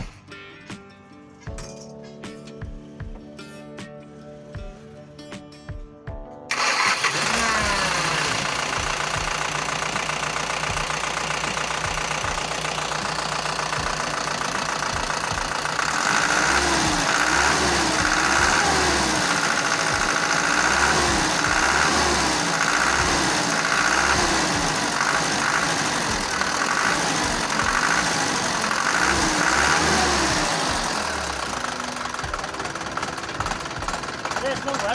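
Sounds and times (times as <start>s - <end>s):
truck engine running: 6.5s - 34.9s.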